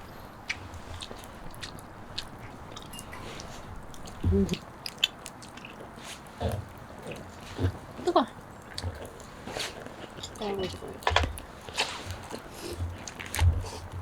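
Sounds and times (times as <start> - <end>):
person biting and chewing food: 0.4 - 7.8.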